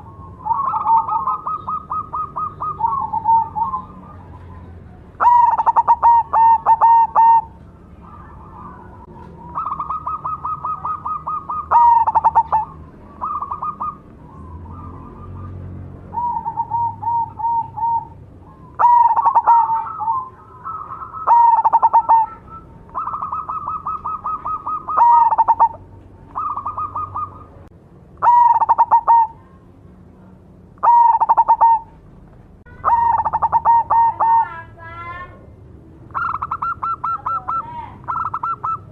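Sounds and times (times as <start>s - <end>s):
dove stuttering coos: 0.0s - 29.4s, 30.8s - 31.9s, 32.8s - 34.7s, 36.1s - 38.9s
second dove trilled coos: 5.2s - 15.5s, 16.1s - 27.5s, 32.7s - 34.5s.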